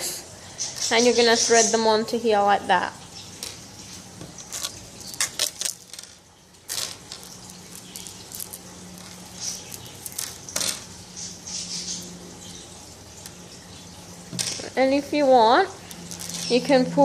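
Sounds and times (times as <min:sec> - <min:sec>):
beads clicking and rattling: 0:04.4 - 0:10.8.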